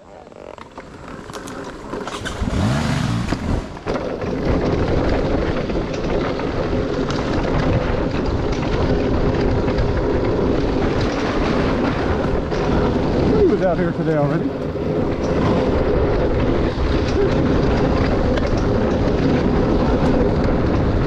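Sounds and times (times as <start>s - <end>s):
dirt bike engine revving: 2.0s - 4.4s.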